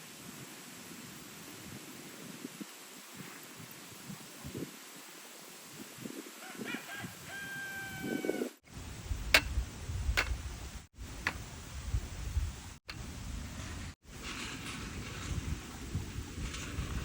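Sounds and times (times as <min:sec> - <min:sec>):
rooster crowing: 0:06.4 - 0:08.6.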